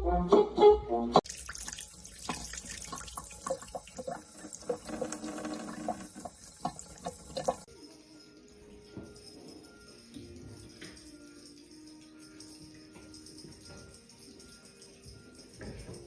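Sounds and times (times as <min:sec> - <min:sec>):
water running and splashing: 0:01.2 - 0:07.7.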